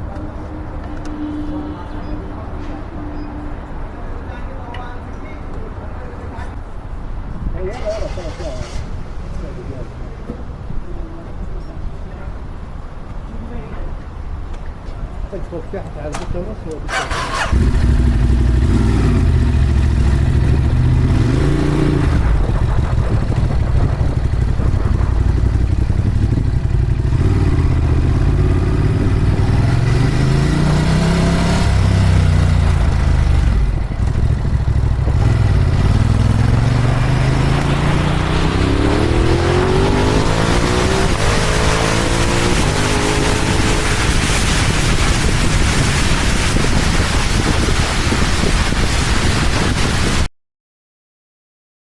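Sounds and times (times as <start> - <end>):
wind noise: 16.3 - 50.3
motorcycle engine revving: 16.9 - 46.4.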